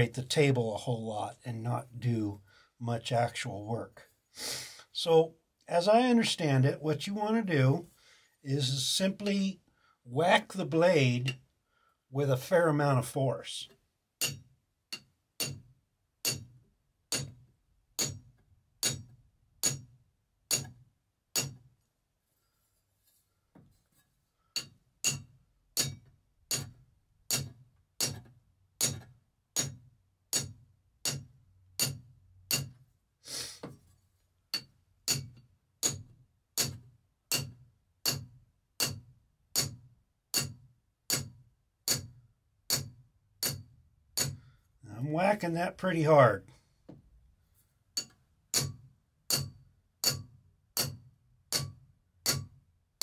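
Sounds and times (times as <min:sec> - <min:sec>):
metal tool hammering saw blade: 0:14.2 - 0:17.4, 0:18.0 - 0:19.9, 0:20.5 - 0:20.8, 0:21.4 - 0:21.6, 0:24.6 - 0:32.8, 0:34.6 - 0:39.0, 0:39.6 - 0:39.8, 0:40.4 - 0:44.4, 0:48.0 - 0:52.6.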